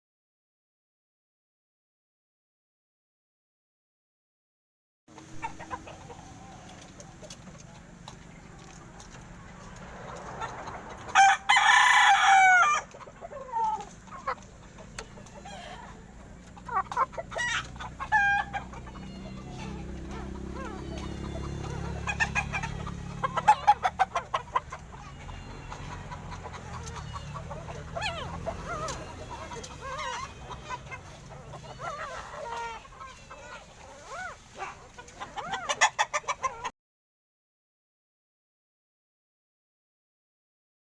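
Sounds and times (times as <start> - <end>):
chicken calls: 5.2 - 36.7
puppies whimpering: 5.4 - 9.0, 13.0 - 36.7
rooster crowing: 11.1 - 12.9, 16.7 - 33.4.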